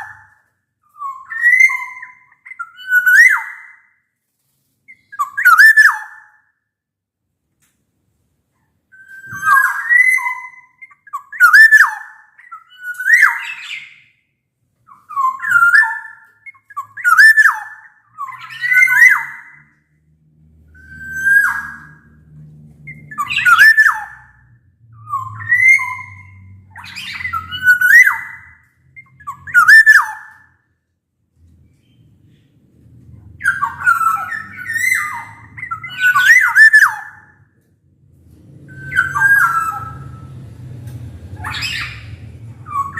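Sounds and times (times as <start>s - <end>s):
bird whistling fluting phrases: 9.0s - 13.9s, 33.4s - 37.2s, 38.7s - 40.2s.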